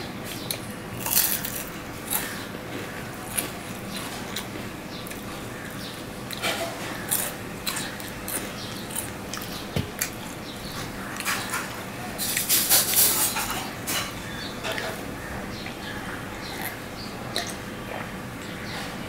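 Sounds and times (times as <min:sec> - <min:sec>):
man chewing and lip-smacking: 0:03.2 - 0:05.4, 0:07.1 - 0:10.4, 0:16.6 - 0:18.2
wet mouth clicks: 0:16.6 - 0:17.6.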